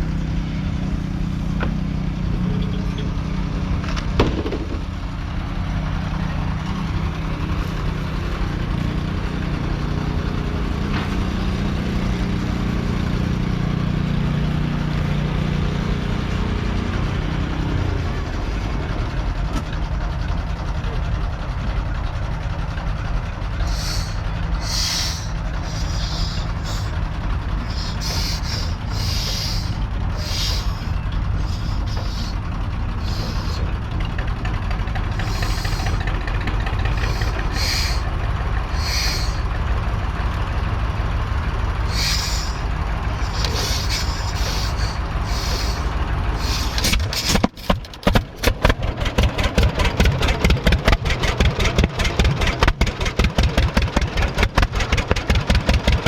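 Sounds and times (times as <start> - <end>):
low engine drone: 0.0 - 56.0
tractor engine exhaust pops: 3.8 - 5.2, 10.8 - 12.0, 23.6 - 39.5, 41.9 - 56.0
short hissing bursts: 23.6 - 27.0, 27.6 - 32.4, 33.0 - 33.7, 35.1 - 36.0, 36.9 - 38.1, 38.7 - 39.5, 41.8 - 47.4.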